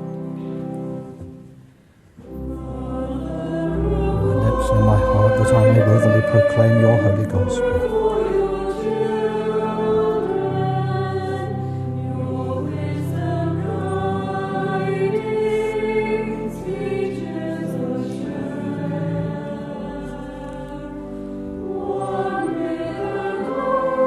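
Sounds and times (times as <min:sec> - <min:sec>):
choir singing a hymn: 0:02.2 - 0:24.0
steady low notes: 0:02.3 - 0:08.6.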